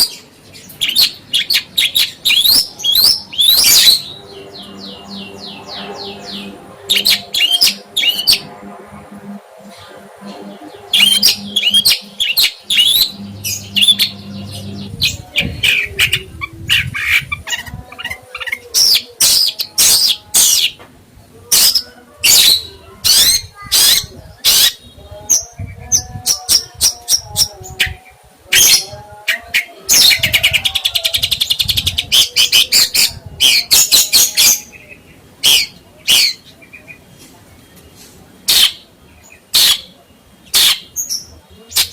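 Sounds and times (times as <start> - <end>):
faint low hum: 0.0 - 29.3
songbird chirping and trilling: 0.0 - 41.9.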